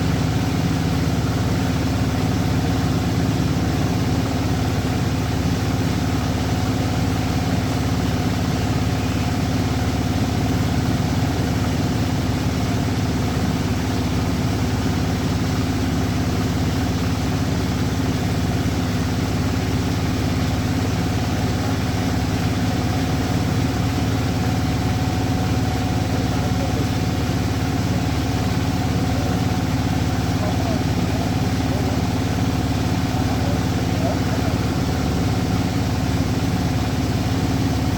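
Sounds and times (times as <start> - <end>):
engine idling: 0.0 - 37.9.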